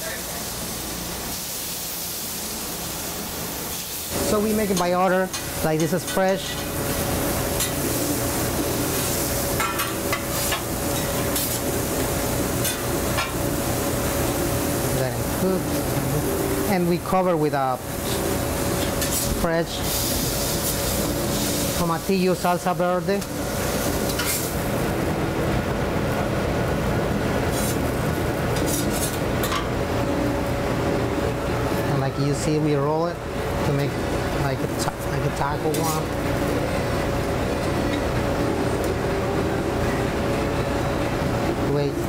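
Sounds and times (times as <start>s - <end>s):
food sizzling on griddle: 0.0s - 16.8s, 17.8s - 22.4s, 23.2s - 24.8s, 27.4s - 29.4s.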